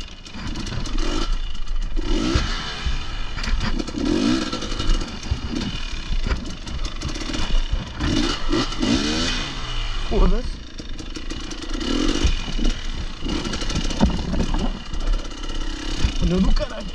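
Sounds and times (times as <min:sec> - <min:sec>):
motorcycle engine revving: 0:00.0 - 0:16.9
motorcycle knocking on rocks: 0:02.8 - 0:08.7, 0:10.6 - 0:16.9.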